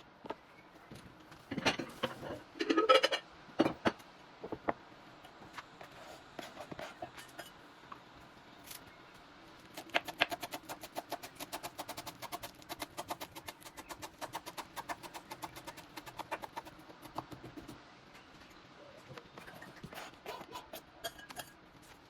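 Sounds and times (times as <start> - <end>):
dishes and utensils clinking: 1.5 - 4.0, 6.9 - 7.6, 19.4 - 21.6.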